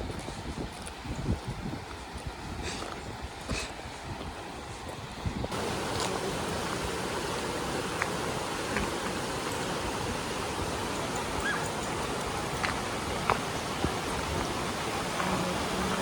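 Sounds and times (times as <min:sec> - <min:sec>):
stream water rushing: 0:03.8 - 0:16.0.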